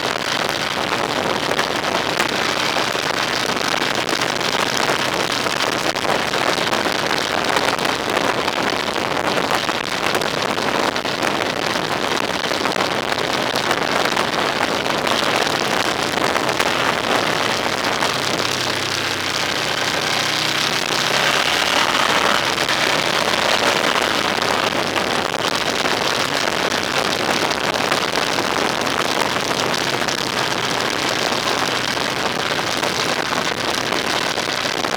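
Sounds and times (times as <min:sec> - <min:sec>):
road and wind noise: 0:00.0 - 0:34.9
low engine hum: 0:13.8 - 0:26.1.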